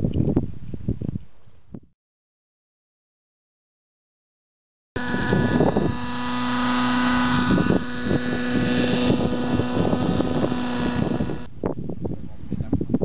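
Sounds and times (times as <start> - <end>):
wind buffeting microphone: 0.0 - 1.9, 5.0 - 13.0
model aircraft motor running: 5.0 - 11.5.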